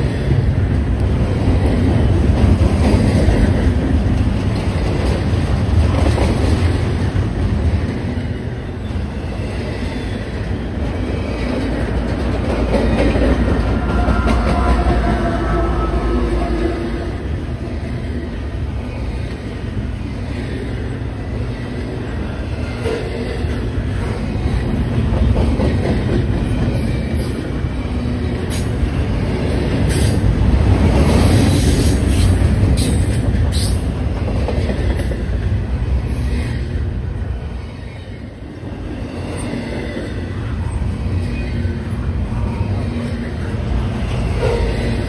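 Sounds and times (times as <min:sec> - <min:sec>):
steel wheels rumbling on rail: 0:00.0 - 0:45.0.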